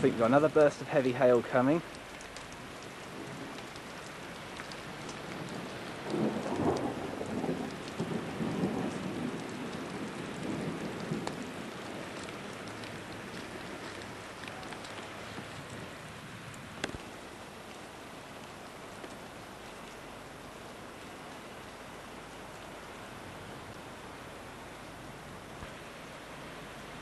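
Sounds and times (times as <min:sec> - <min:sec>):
heavy rain hissing: 0:00.0 - 0:27.0
sharp rain taps: 0:00.0 - 0:27.0
thunder rumbling: 0:04.9 - 0:17.0.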